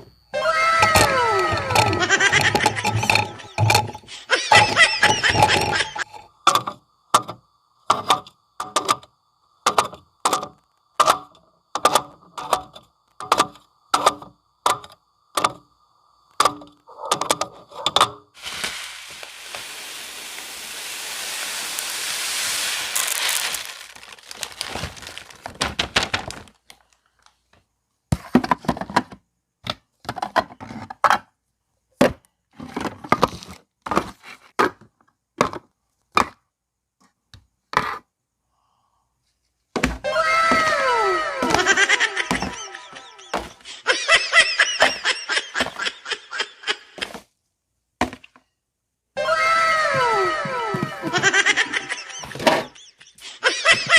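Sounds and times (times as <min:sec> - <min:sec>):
steady hissing noise: 0:18.2 - 0:26.4.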